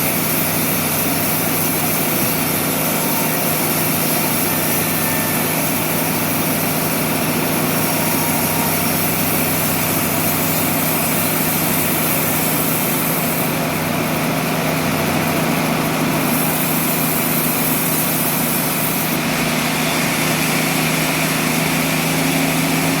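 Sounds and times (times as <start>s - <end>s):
sawmill machinery humming: 0.0s - 23.0s.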